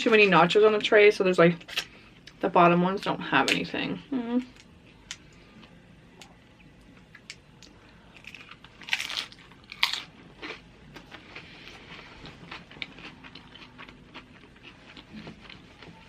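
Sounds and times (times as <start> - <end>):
tortilla chips crunching: 8.1 - 15.9
crunchy chewing: 8.2 - 16.0.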